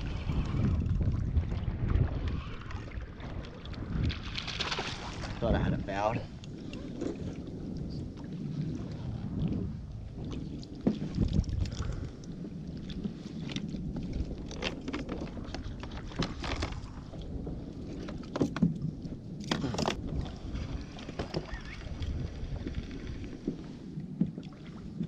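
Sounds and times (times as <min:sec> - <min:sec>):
water slapping a hull: 0:00.0 - 0:25.0
wind rumbling on microphone: 0:00.0 - 0:25.0
knocks and splashes: 0:00.2 - 0:05.6, 0:17.9 - 0:21.8.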